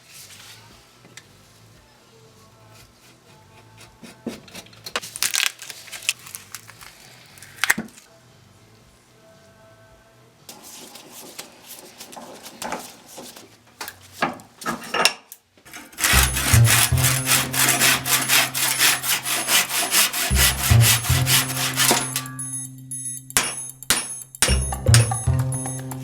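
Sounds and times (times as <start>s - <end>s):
handsaw cutting through wood: 15.9s - 22.3s
low steady tone: 16.1s - 26.0s.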